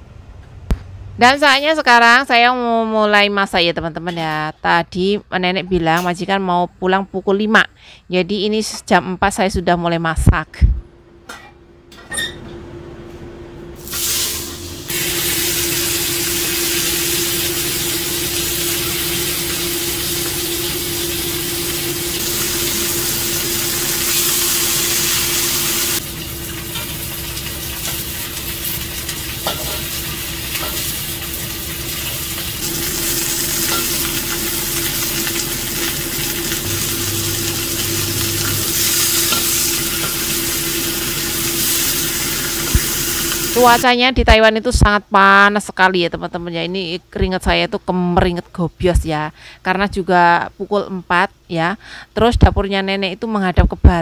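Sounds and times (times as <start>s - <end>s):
steady hum: 10.2s - 43.9s
fish sizzling in hot oil: 13.8s - 43.8s.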